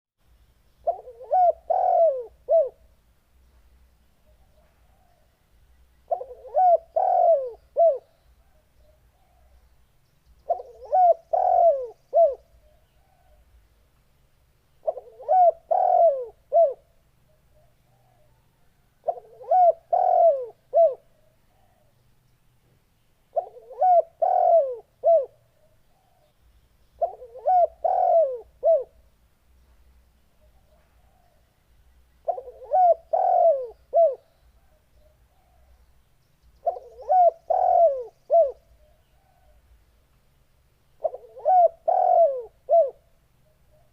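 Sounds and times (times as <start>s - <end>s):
dove cooing: 0.8s - 2.9s, 6.1s - 9.6s, 10.4s - 13.5s, 14.8s - 21.9s, 23.3s - 26.3s, 27.0s - 29.1s, 32.2s - 35.8s, 36.6s - 39.8s, 41.0s - 43.9s.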